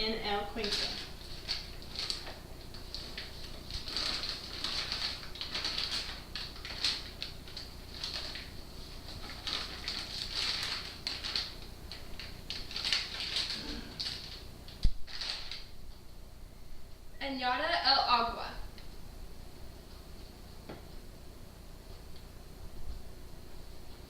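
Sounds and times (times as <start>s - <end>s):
paper packets rustling: 0.3s - 15.8s.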